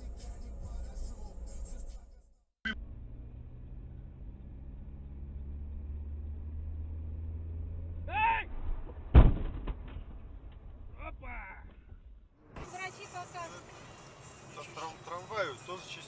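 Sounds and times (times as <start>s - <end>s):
car engine drone from inside: 2.7s - 8.1s
loud thump: 8.5s - 12.2s.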